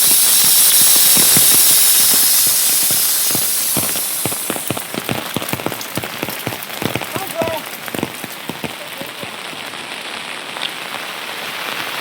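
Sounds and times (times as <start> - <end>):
rain hiss: 0.0 - 12.0
raindrops striking a surface: 0.0 - 12.0.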